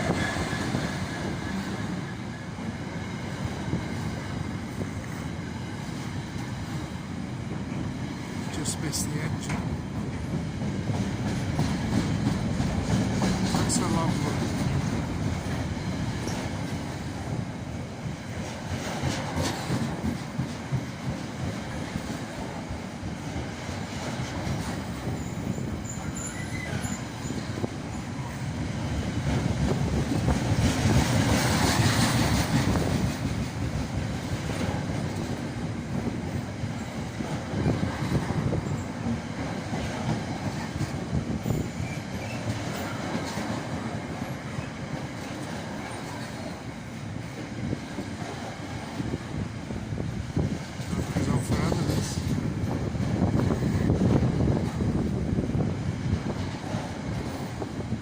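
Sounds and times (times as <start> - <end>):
diesel freight train passing: 0.0 - 58.0
wheels clattering over rail joints: 9.4 - 17.1, 18.4 - 22.5
wheel squeal: 25.1 - 28.4.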